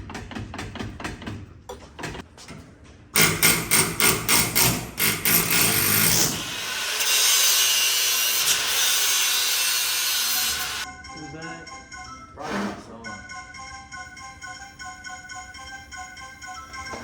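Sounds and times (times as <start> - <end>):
tool strikes: 3.2 - 9.5.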